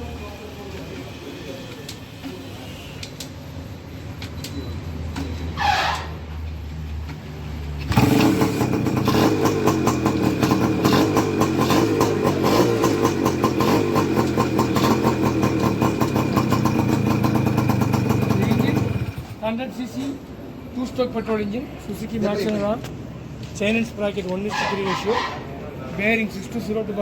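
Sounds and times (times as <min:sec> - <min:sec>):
two-stroke engine running: 0:07.9 - 0:19.4.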